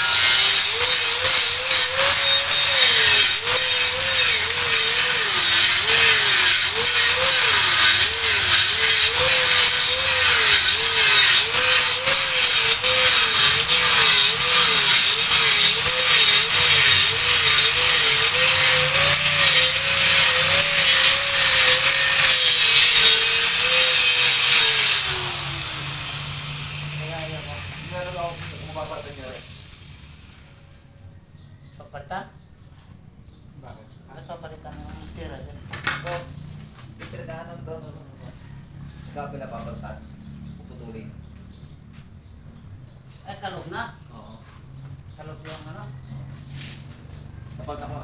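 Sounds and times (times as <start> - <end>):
power tool motor whining: 0.0 - 30.7.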